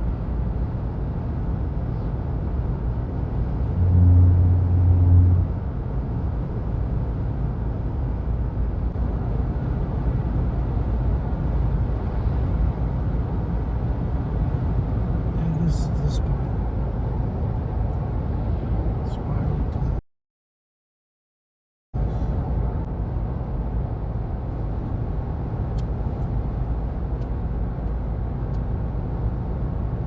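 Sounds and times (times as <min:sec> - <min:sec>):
vehicle road noise rumble: 0:00.0 - 0:20.0, 0:22.0 - 0:30.0
loud low hum: 0:02.9 - 0:07.9.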